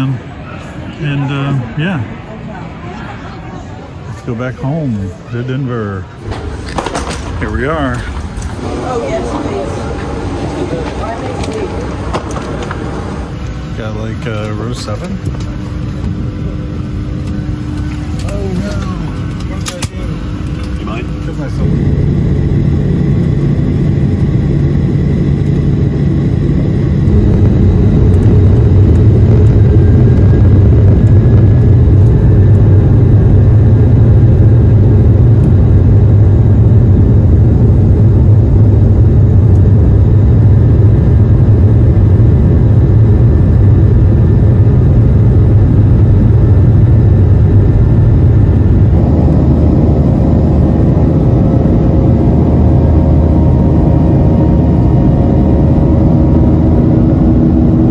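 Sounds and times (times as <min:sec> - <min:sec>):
jet engine cabin rumble: 0:00.0 - 0:57.9.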